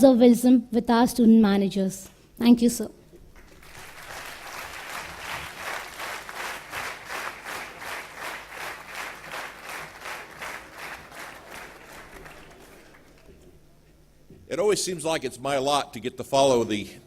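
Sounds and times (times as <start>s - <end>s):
audience applauding: 3.3s - 13.6s.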